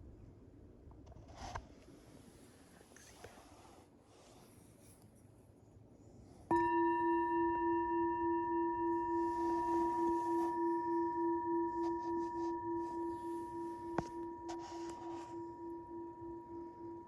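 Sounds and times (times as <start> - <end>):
bell-like metal tone ringing: 6.5 - 17.0.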